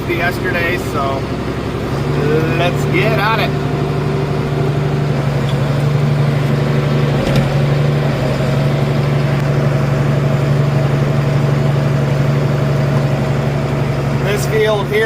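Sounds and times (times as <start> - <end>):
farm machine engine running: 0.0 - 15.0.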